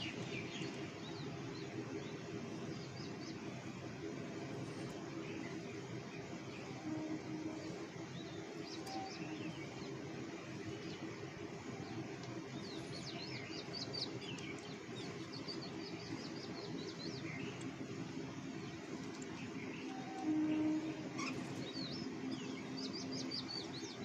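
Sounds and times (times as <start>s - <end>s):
small birds chirping: 8.1s - 24.0s.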